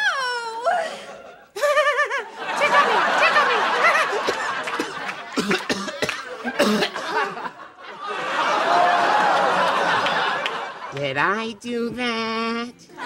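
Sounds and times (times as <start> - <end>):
studio audience laughter: 1.4 - 11.0
person coughing and hacking: 4.3 - 7.0.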